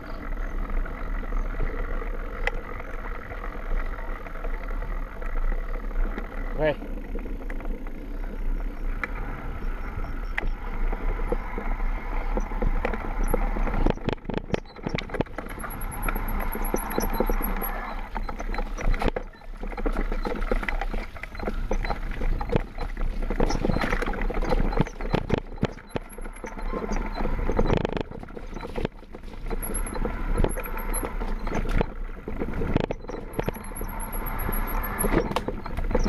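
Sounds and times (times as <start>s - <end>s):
bike rattling over bumps: 0.0s - 36.0s
tyre and wind noise: 6.9s - 36.0s.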